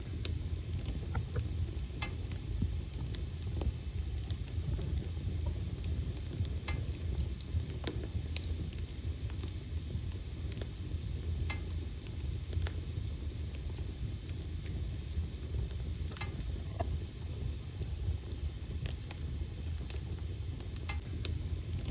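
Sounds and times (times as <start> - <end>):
fire crackling and popping: 0.0 - 21.9
fire rumbling: 0.0 - 21.9.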